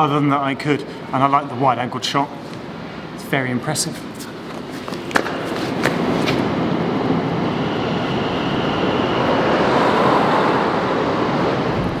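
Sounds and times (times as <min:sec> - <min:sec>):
road traffic passing: 0:04.0 - 0:12.0
electric train rumbling: 0:06.4 - 0:12.0
faint high whine: 0:06.4 - 0:12.0.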